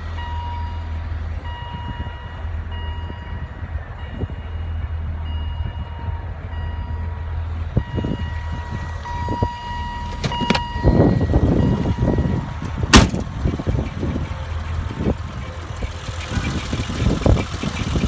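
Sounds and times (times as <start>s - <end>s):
car engine idling: 0.0s - 18.0s
hood latch clack: 10.1s - 10.8s, 12.6s - 13.4s.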